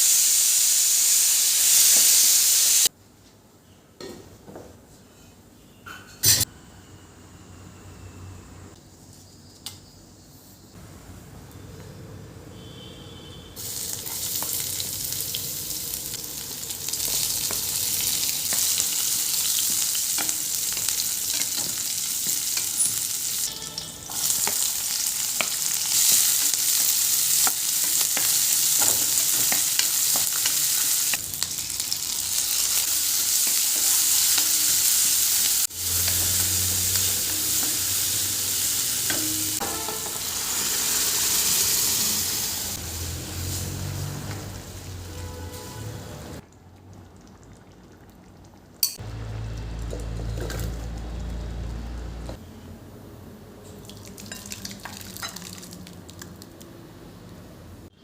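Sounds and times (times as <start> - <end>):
food sizzling in hot oil: 0.0 - 2.9, 13.6 - 46.4, 53.9 - 56.2.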